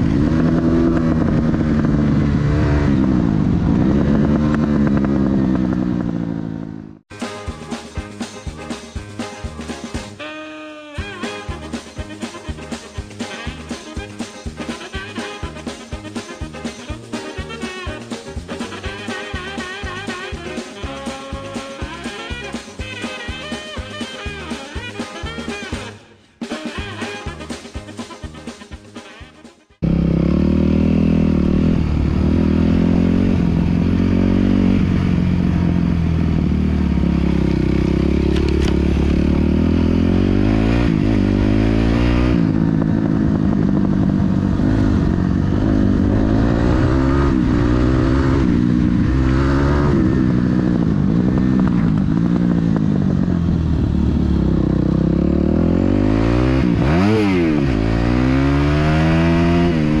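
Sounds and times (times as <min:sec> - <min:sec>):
dirt bike engine revving: 0:00.0 - 0:07.5, 0:29.8 - 1:00.0.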